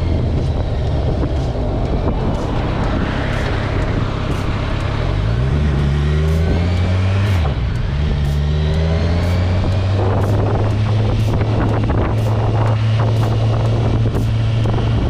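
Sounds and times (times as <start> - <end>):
motorcycle engine running: 0.0 - 15.0
wind noise on microphone: 0.0 - 15.0.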